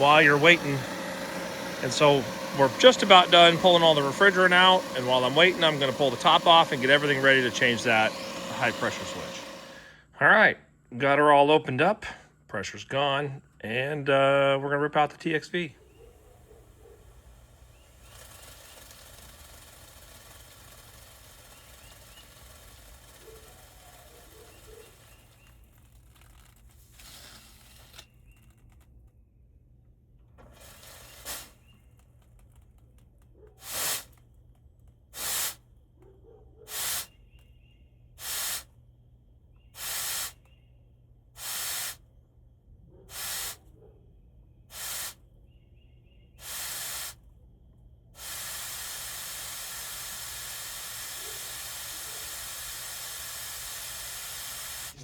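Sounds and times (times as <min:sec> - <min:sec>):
pressurized gas hissing: 0:00.0 - 0:09.9, 0:16.3 - 0:25.6, 0:30.5 - 0:31.7, 0:33.6 - 0:34.1, 0:35.2 - 0:35.6, 0:36.7 - 0:37.1, 0:38.2 - 0:38.7, 0:39.8 - 0:40.4, 0:41.4 - 0:42.0, 0:43.1 - 0:43.6, 0:44.7 - 0:45.2, 0:46.4 - 0:47.2, 0:48.2 - 0:55.0.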